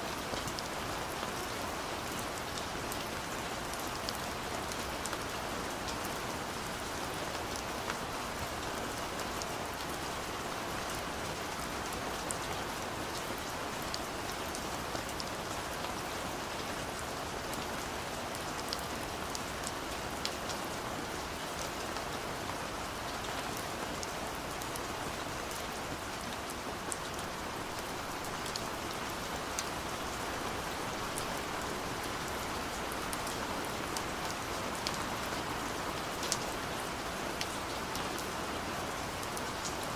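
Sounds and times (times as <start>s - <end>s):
steady rain hiss: 0.0s - 39.9s
raindrops ticking on surface: 25.6s - 39.9s.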